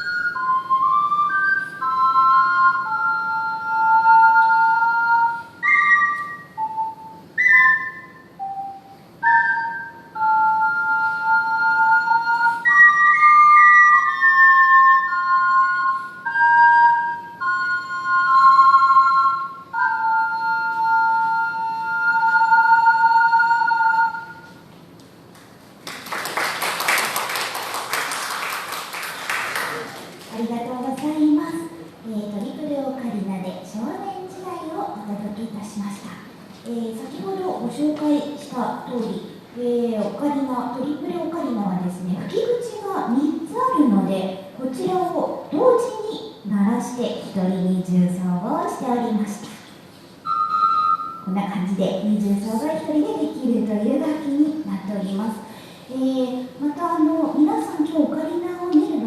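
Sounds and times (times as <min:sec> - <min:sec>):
ocarina playing in harmony: 0:00.0 - 0:24.8, 0:50.1 - 0:51.4
audience applause: 0:25.8 - 0:30.3.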